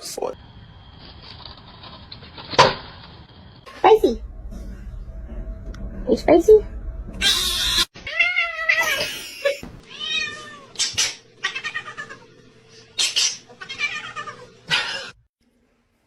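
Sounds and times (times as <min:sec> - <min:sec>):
cat meowing: 0:07.2 - 0:09.0, 0:09.8 - 0:10.8, 0:11.4 - 0:12.3, 0:13.6 - 0:15.1.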